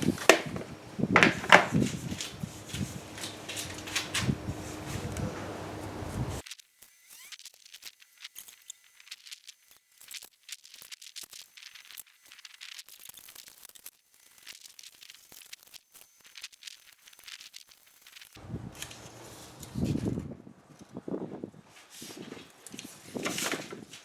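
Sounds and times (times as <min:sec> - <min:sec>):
paper crinkling: 0:00.0 - 0:06.4, 0:16.4 - 0:24.0
scissors snipping paper: 0:00.0 - 0:06.4, 0:18.5 - 0:20.2.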